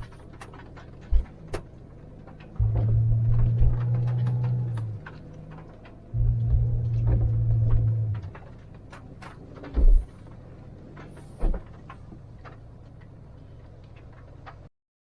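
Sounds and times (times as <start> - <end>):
low rumbling hum: 0.0 - 14.5
small clicks: 0.0 - 14.7
dull thumps: 2.4 - 12.6.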